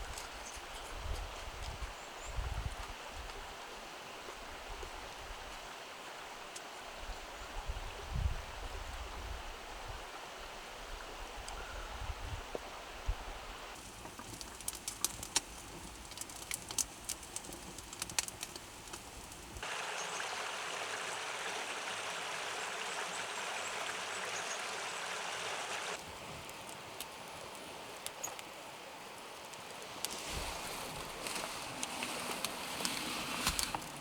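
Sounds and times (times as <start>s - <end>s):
campfire crackling and popping: 13.8s - 19.6s, 26.0s - 28.5s, 29.4s - 34.0s
stream flowing: 19.6s - 34.0s.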